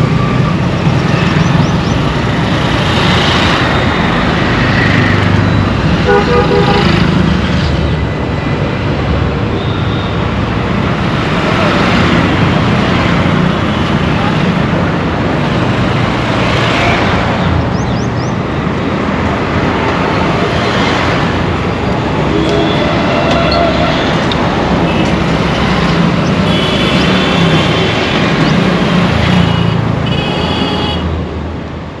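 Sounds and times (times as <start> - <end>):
road traffic noise: 0.0 - 32.0
vehicle horns: 6.0 - 7.1, 22.2 - 28.2, 29.2 - 31.1.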